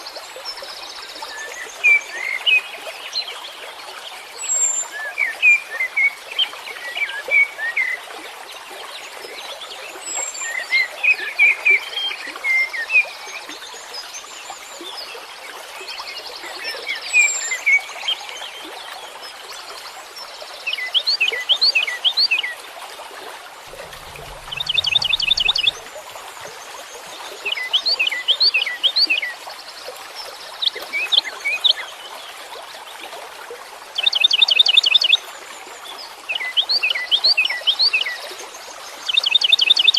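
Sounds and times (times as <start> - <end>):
songbirds singing: 23.7 - 29.4.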